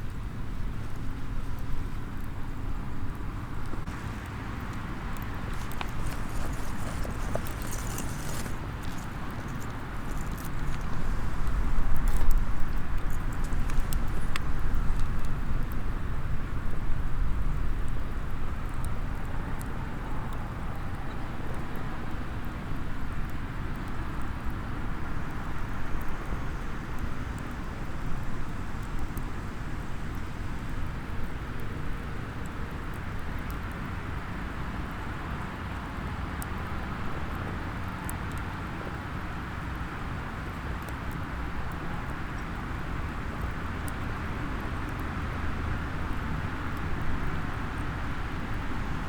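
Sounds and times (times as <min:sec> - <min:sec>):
wood fire crackling and popping: 0:02.4 - 0:15.8.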